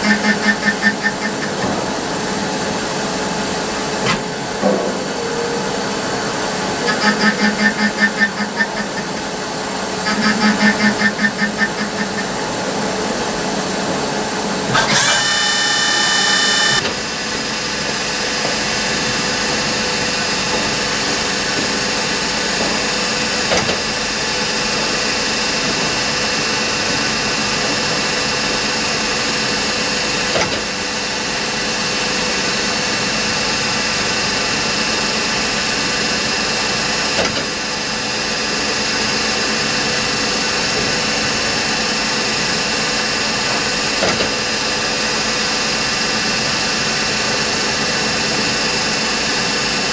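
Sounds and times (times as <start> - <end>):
high whining tones: 0.0 - 17.3
lathe machine hum: 0.0 - 49.9.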